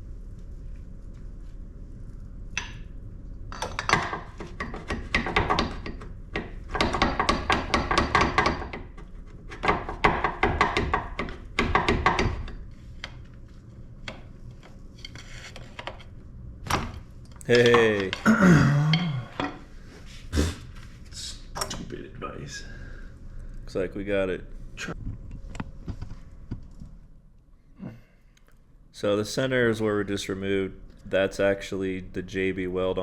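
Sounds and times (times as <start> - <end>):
rapid metal knocks and clanks: 3.6 - 12.6.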